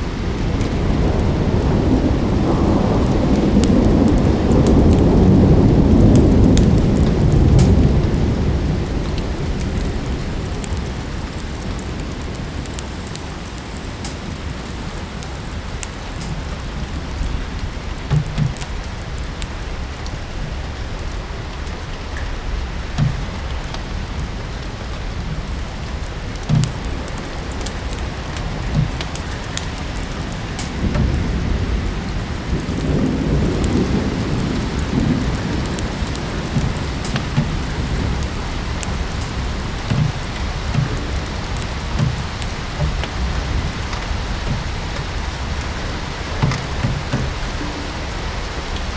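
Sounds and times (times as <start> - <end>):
fireplace crackling: 0.0 - 48.9
steady rain: 0.0 - 48.9
sharp pops: 18.0 - 18.8, 22.9 - 24.0, 25.2 - 31.4, 35.3 - 45.8.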